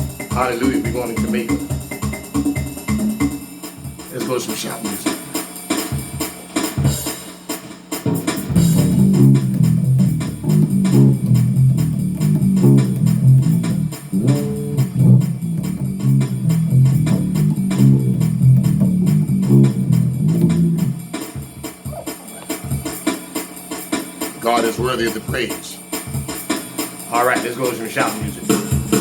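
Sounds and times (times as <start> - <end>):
bass guitar playing fast: 0.0 - 3.4, 8.1 - 23.2.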